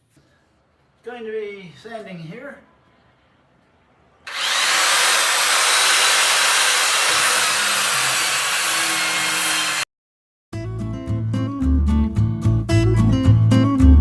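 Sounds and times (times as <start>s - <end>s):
power sander on wood: 4.3s - 9.8s.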